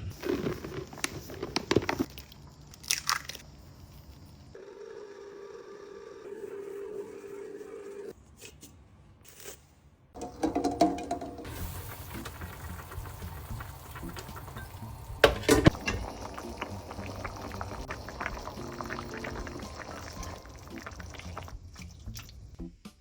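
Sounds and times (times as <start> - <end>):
liquid bubbling in a pot: 10.3 - 22.6.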